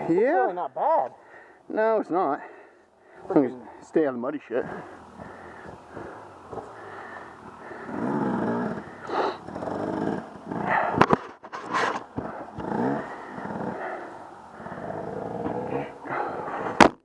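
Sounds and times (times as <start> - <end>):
off-road engine revving: 4.6 - 11.0, 11.7 - 16.6.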